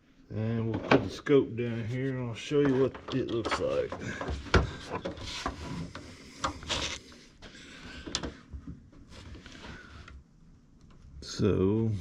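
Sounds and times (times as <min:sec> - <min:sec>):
equipment handling clicks and knocks: 0:02.6 - 0:06.8, 0:08.0 - 0:08.8.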